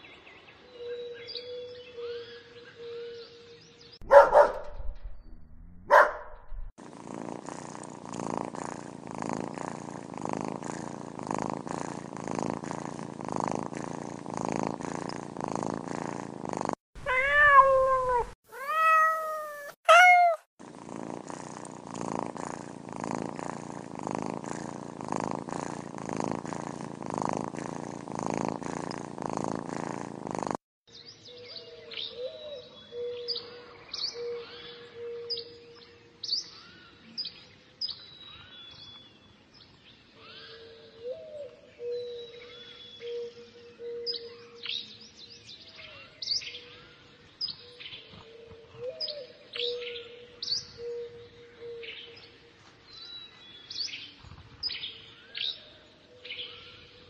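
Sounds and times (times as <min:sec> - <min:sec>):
kitten purring: 0:06.4 - 0:30.6
kitten meowing: 0:17.0 - 0:20.5.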